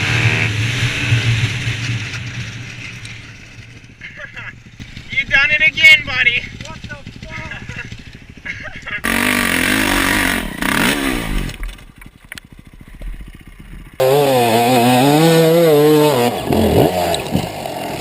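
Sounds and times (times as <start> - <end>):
dirt bike engine revving: 0.0 - 3.0, 3.7 - 18.0.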